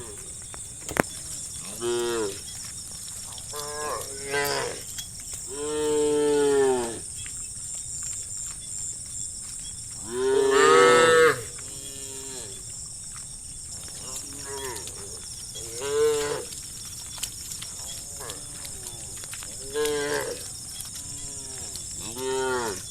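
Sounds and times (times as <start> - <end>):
livestock calling: 0.0 - 2.4.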